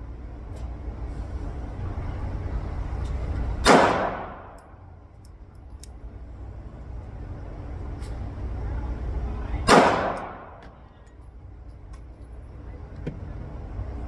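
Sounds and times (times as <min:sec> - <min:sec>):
steady low rumble: 0:00.0 - 0:14.0
pistol shot with echo: 0:03.6 - 0:04.6, 0:09.7 - 0:10.6.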